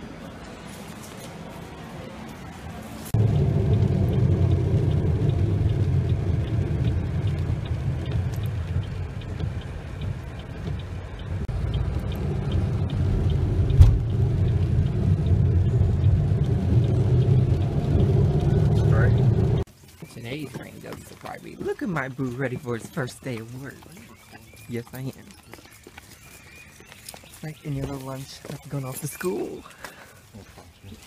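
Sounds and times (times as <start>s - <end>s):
car engine and road noise: 0.0s - 31.0s
faint regular ticking: 3.2s - 26.1s.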